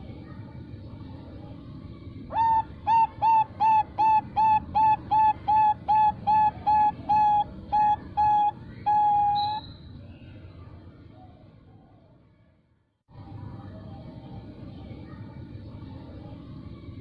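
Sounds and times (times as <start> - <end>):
dove cooing: 2.3 - 9.6.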